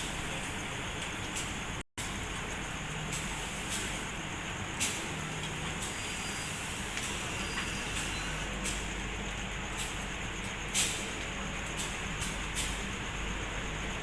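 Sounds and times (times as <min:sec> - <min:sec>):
diesel train running: 0:00.0 - 0:14.0
hiss: 0:03.1 - 0:09.0, 0:10.7 - 0:13.0.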